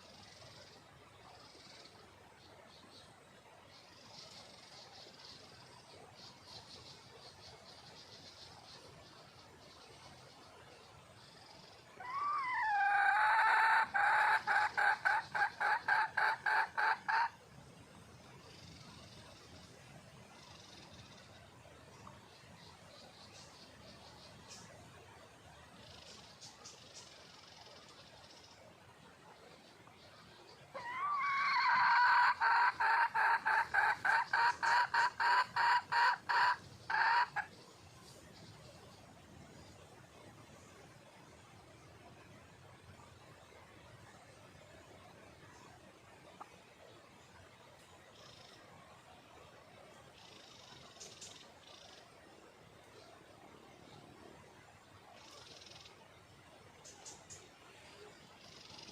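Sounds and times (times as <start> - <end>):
junglefowl hen calling: 12.0 - 17.4, 30.7 - 37.6.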